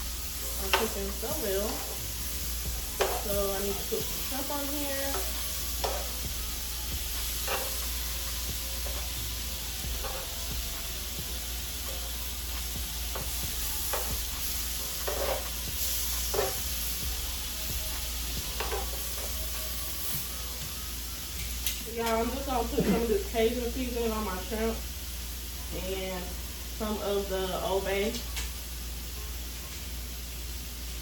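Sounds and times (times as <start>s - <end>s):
food sizzling on griddle: 0.0s - 31.0s
spatula scraping griddle: 0.6s - 11.2s, 11.8s - 17.3s.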